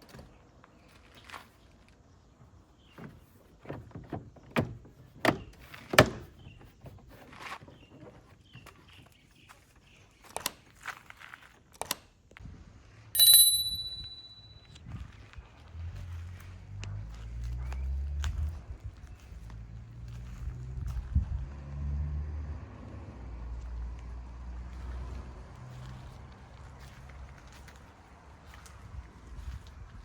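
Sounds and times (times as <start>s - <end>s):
bright metallic ring: 13.2s - 14.8s.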